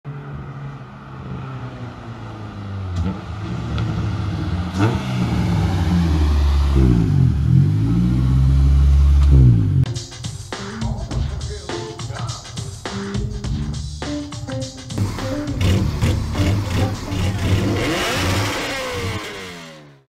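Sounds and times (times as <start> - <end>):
car engine approaching: 0.1 - 9.9, 14.8 - 20.0.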